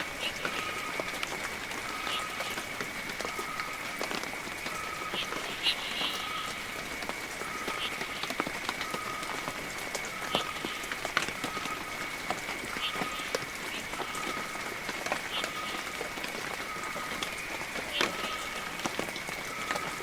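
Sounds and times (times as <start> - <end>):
heavy rain falling: 0.0 - 20.0
raindrops clicking: 0.0 - 20.0
short pitched call: 7.5 - 8.3.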